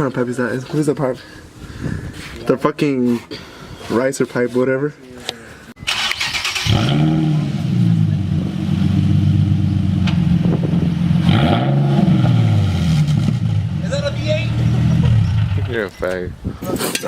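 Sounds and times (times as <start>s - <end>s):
engine starting and running: 5.8s - 8.8s.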